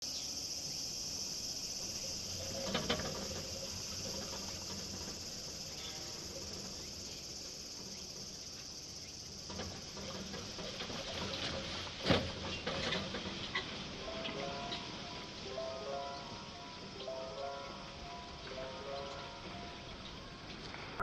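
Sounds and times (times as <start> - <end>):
high-pitched insect chorus: 0.0 - 21.0
faint knocks: 1.8 - 15.0.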